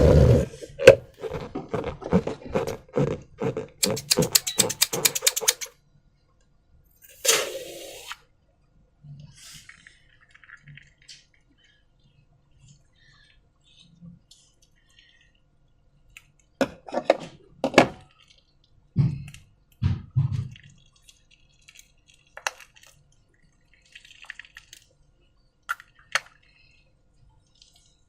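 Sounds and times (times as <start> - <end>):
containers clinking and knocking: 3.8 - 5.7.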